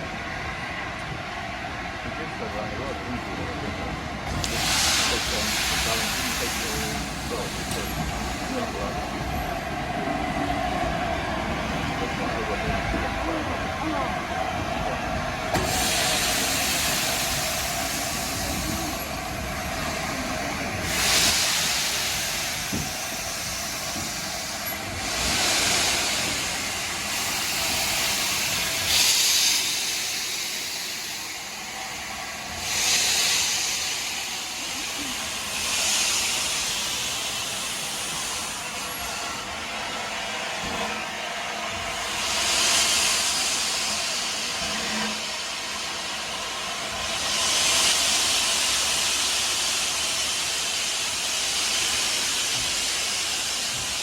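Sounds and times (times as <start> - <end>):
steam locomotive hissing steam: 0.0 - 54.0.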